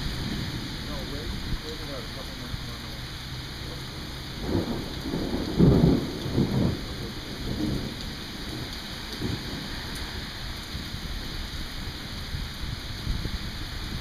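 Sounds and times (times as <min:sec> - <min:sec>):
steady rain: 0:00.0 - 0:14.0
rolling thunder: 0:03.9 - 0:11.1.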